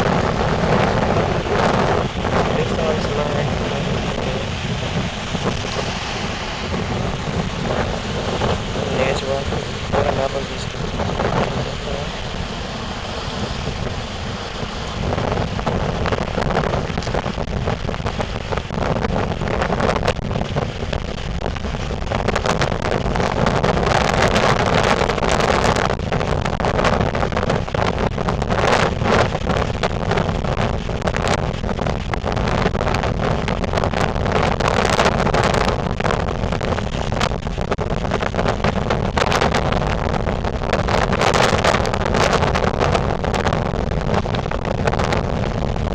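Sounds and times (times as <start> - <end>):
rumble of heavy surf: 0.0 - 45.9
strong gusting wind on microphone: 0.0 - 45.9.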